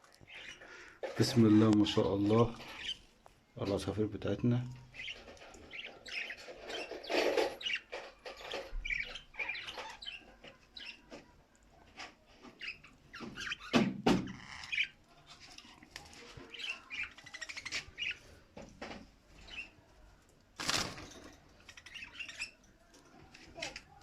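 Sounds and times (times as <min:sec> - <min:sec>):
small birds chirping: 0:00.0 - 0:24.0
wings flapping: 0:20.6 - 0:21.2.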